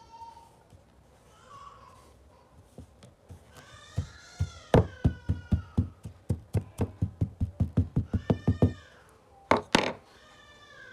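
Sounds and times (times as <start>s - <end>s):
fast sharp knocks: 4.0s - 8.8s.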